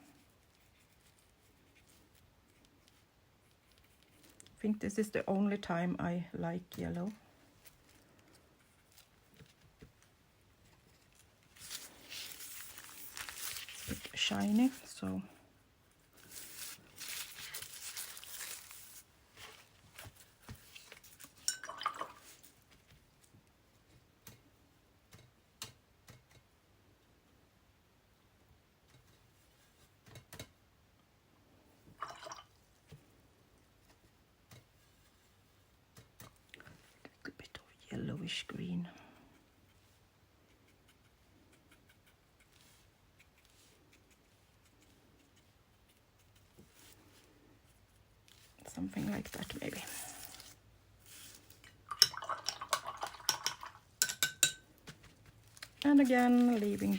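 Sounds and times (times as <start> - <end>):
paintbrush strokes on paper: 0.0 - 4.4, 10.7 - 21.4, 39.3 - 51.6
paper rustling: 7.5 - 15.0, 16.1 - 21.4, 55.0 - 56.9.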